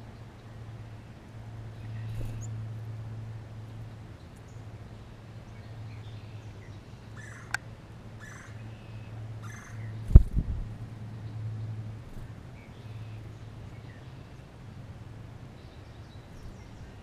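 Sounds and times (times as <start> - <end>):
steady low hum: 0.0 - 17.0
harsh bird calls: 5.9 - 7.6, 8.2 - 10.1.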